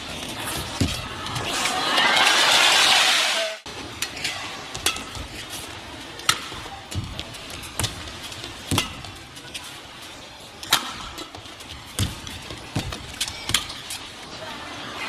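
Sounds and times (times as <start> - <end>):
arena crowd hiss: 1.5 - 3.6
rackets striking shuttlecock: 4.0 - 5.5, 6.2 - 7.1, 7.7 - 9.3, 10.6 - 14.0.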